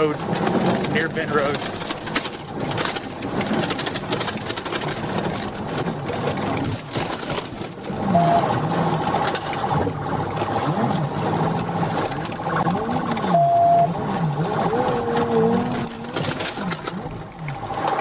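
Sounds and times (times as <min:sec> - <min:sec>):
car engine and road noise: 0:00.0 - 0:18.0
low rising and falling tone: 0:07.9 - 0:09.2, 0:10.6 - 0:17.7
short beep: 0:08.0 - 0:08.5, 0:13.3 - 0:14.0
fast pulsing siren tone: 0:08.1 - 0:08.5, 0:13.3 - 0:14.0.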